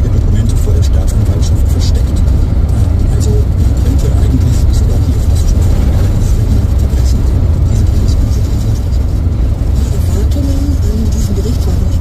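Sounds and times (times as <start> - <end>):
faint voice: 0.0 - 9.0
car road and engine rumble: 0.0 - 12.0.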